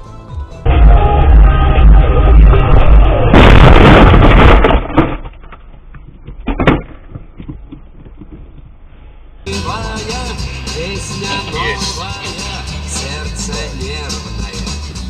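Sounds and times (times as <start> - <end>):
car collision crash: 2.4 - 5.4.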